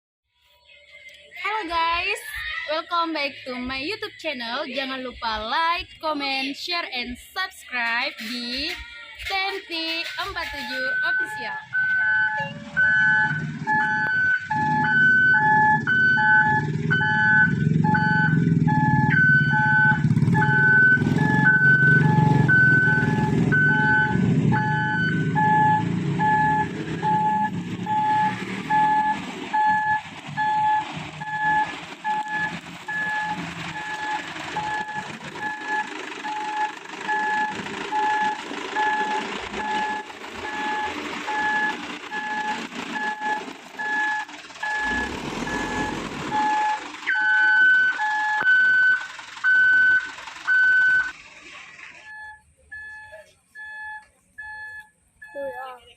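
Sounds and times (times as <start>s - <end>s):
truck engine: 0.6s - 55.9s
truck reversing beeper: 7.1s - 55.9s
higher beeping: 9.5s - 51.2s.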